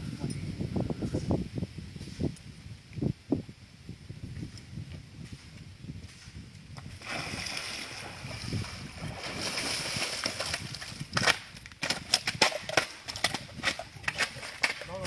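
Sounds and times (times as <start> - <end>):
water splashing and sloshing: 6.9 - 11.4.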